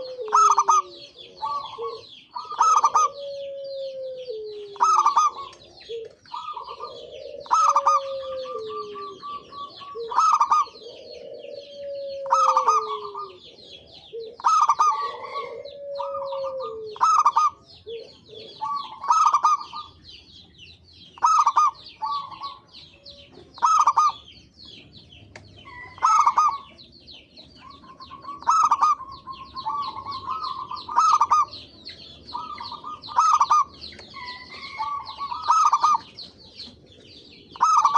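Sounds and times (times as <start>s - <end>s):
doves cooing: 0.0s - 37.9s
high chirping: 0.0s - 37.9s.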